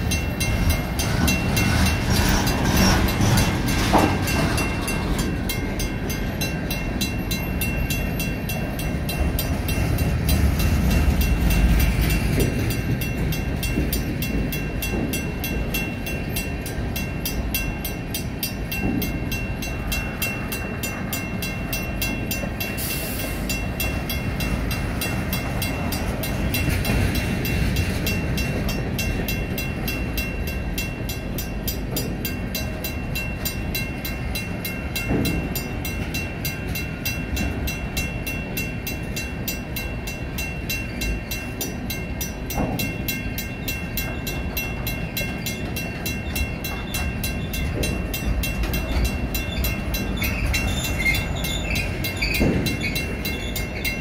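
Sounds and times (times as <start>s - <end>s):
freight cars rumbling past: 0.0s - 38.5s
crossing bell ringing rapidly: 0.0s - 54.0s.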